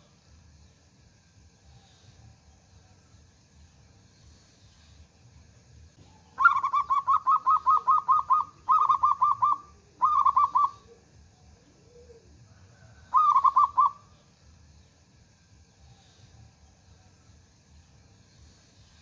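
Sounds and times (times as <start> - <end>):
dove cooing: 6.0 - 14.2.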